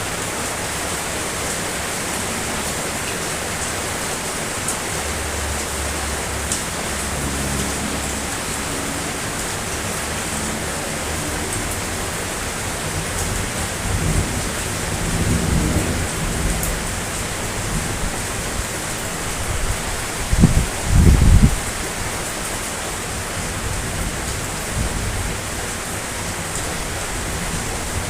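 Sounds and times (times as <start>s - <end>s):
heavy rain hissing: 0.0s - 28.0s
thunder rumbling: 4.4s - 21.7s.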